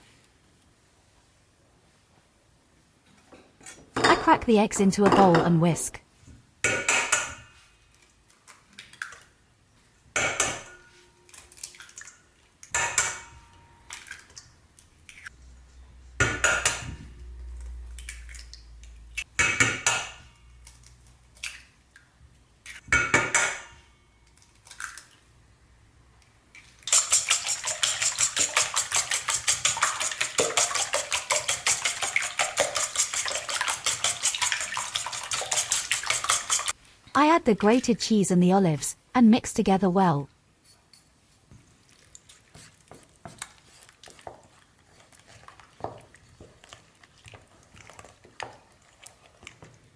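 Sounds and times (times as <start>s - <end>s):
eggs whisked in bowl: 26.6s - 36.8s, 41.6s - 49.9s.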